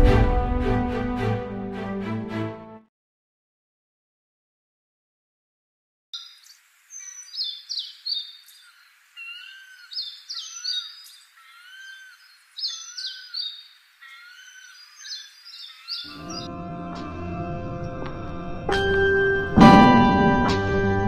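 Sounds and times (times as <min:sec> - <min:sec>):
birds chirping: 0:06.2 - 0:16.5.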